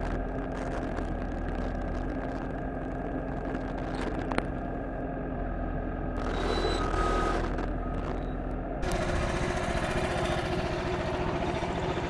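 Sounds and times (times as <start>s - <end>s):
sawmill engine running: 8.8s - 12.0s.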